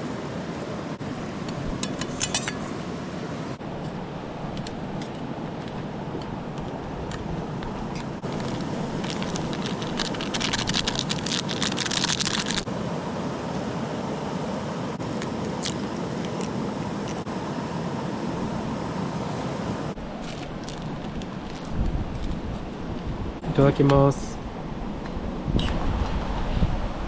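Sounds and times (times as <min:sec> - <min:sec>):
campfire crackling: 0:03.6 - 0:12.7, 0:15.0 - 0:17.3, 0:20.0 - 0:23.4.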